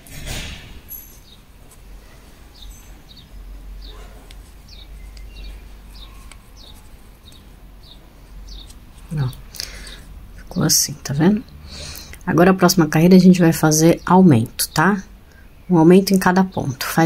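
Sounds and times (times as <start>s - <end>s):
small bird chirping: 2.5s - 10.0s.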